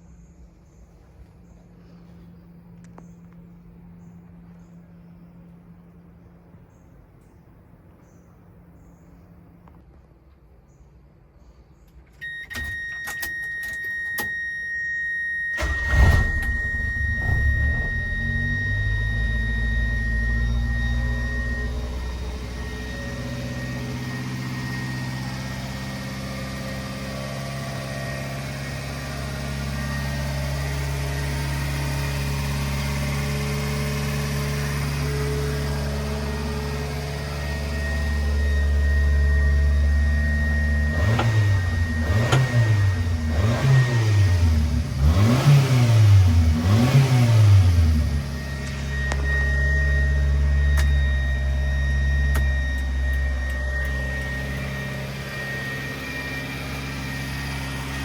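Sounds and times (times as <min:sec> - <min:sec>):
engine revving: 0:15.6 - 0:58.0
truck engine running: 0:15.6 - 0:58.0.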